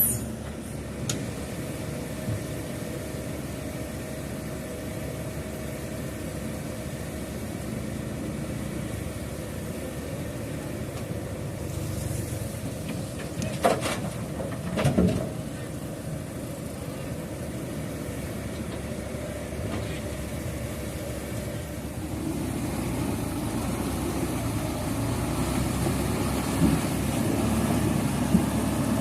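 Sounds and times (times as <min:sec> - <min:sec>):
heavy vehicle engine rumbling: 0:00.0 - 0:29.0.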